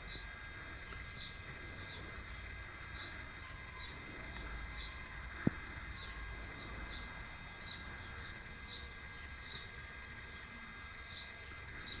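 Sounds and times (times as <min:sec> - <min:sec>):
steady low rumble: 0:00.0 - 0:09.3
small bird chirping: 0:00.0 - 0:12.0.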